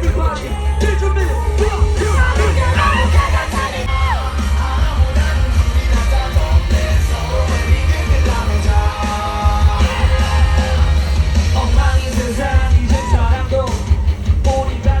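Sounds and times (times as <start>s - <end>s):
people yelling: 0.0s - 14.2s
heavy bass beat: 0.0s - 15.0s
live concert music: 0.0s - 15.0s
person singing: 0.0s - 15.0s.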